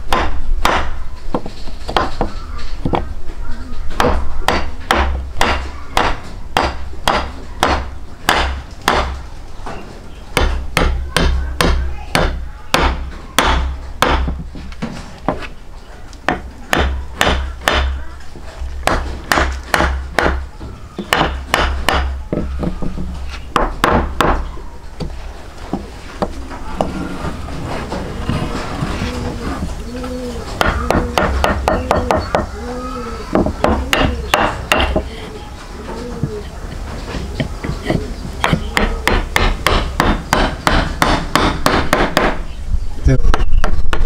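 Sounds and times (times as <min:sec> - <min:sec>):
sharp knocks: 0:00.1 - 0:03.1, 0:03.9 - 0:09.2, 0:10.4 - 0:15.4, 0:16.3 - 0:18.0, 0:18.8 - 0:20.5, 0:21.1 - 0:25.1, 0:30.6 - 0:32.6, 0:33.3 - 0:35.1, 0:37.3 - 0:42.4.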